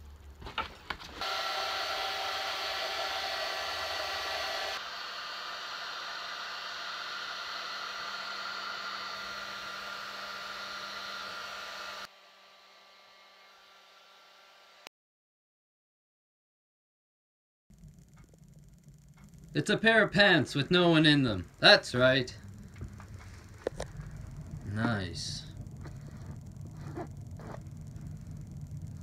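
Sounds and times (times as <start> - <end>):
heat gun blowing: 1.2 - 12.2.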